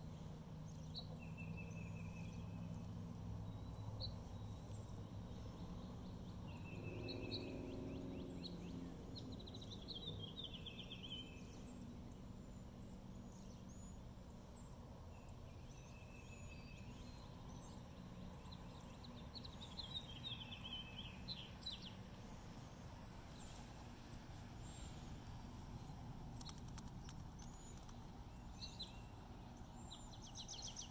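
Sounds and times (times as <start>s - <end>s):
songbird singing trills: 0.6s - 30.9s
fidget spinner clicks: 26.3s - 28.1s.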